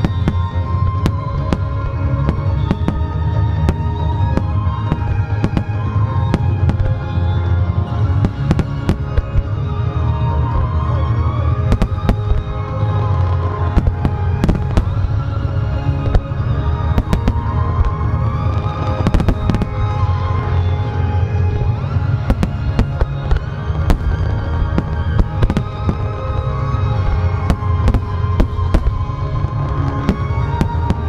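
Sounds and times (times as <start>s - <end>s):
fireworks bursting with sharp bangs: 0.0s - 31.0s.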